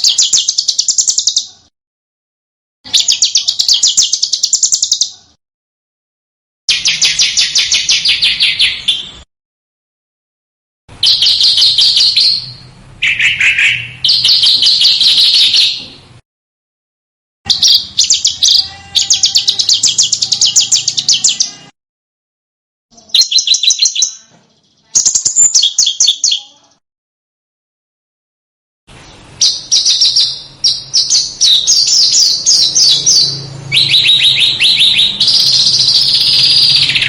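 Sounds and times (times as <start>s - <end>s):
songbird trilling: 0.0s - 1.5s, 2.9s - 5.2s, 11.0s - 15.8s, 17.5s - 21.6s, 23.0s - 26.6s, 29.4s - 37.0s.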